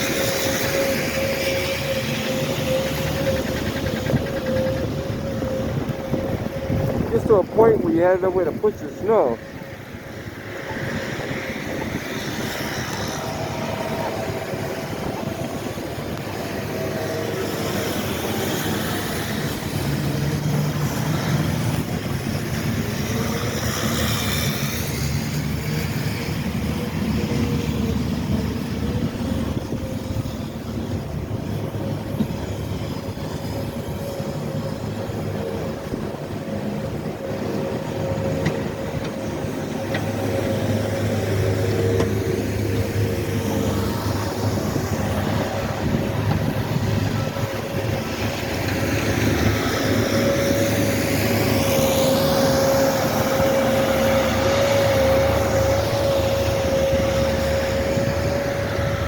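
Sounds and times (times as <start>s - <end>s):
snow-clearing machinery engines: 0.0s - 59.0s.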